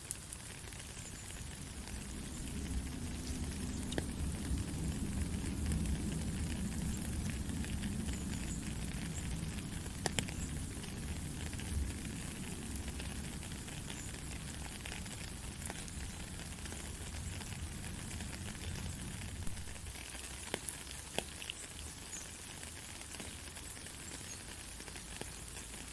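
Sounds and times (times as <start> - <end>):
heavy rain: 0.0 - 25.9
raindrop ticks: 0.0 - 25.9
low rumble: 1.3 - 14.6.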